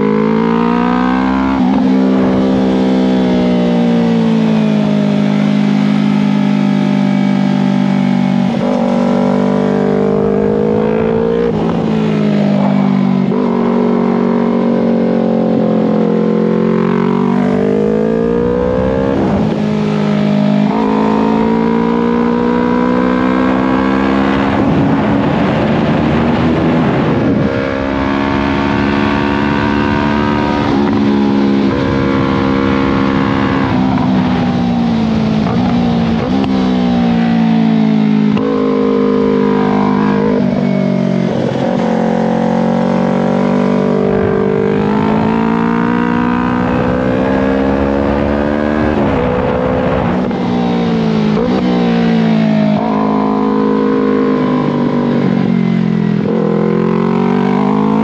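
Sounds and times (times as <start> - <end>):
motorcycle engine revving: 0.0 - 58.0
wind noise on microphone: 23.5 - 38.5, 39.3 - 58.0.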